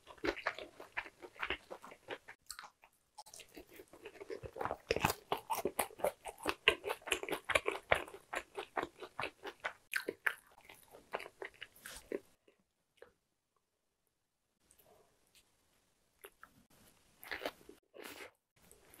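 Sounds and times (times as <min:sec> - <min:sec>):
person crunching fried food: 0:00.0 - 0:12.2, 0:17.2 - 0:19.0.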